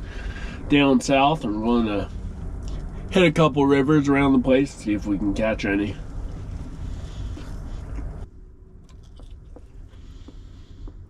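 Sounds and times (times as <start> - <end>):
person chewing: 8.9 - 10.3.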